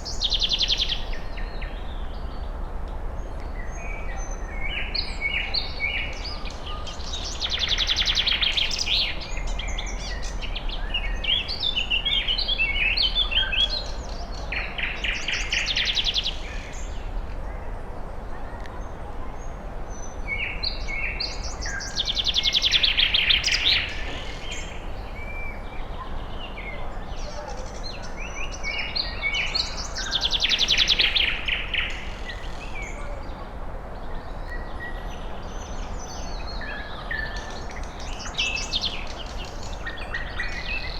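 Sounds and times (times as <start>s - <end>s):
bird trilling song: 0.0s - 1.8s, 3.6s - 16.8s, 20.4s - 25.7s, 27.2s - 33.0s, 35.4s - 40.9s
birds chirping: 0.0s - 2.4s, 20.5s - 33.6s, 34.2s - 40.9s.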